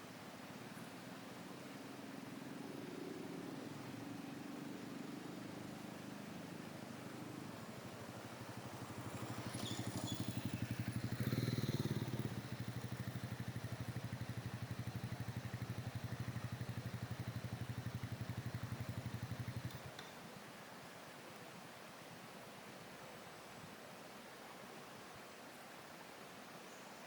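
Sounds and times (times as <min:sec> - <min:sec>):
small petrol engine running: 0:08.4 - 0:19.8.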